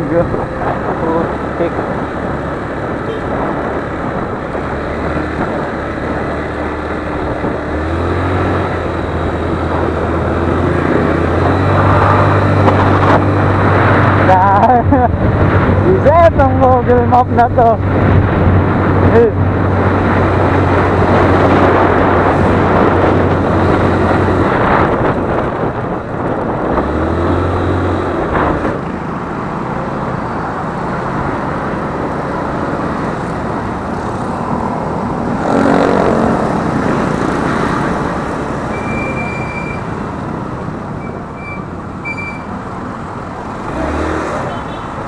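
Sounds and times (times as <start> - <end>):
traffic: 0.0 - 45.0
wind and road noise: 0.0 - 45.0
short high beeps: 38.7 - 39.9, 41.0 - 42.5.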